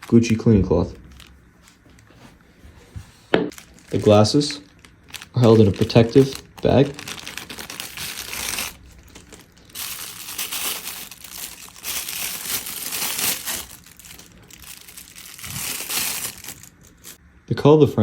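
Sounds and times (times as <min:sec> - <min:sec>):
plastic bag crinkling: 0:00.0 - 0:02.1, 0:03.5 - 0:17.2.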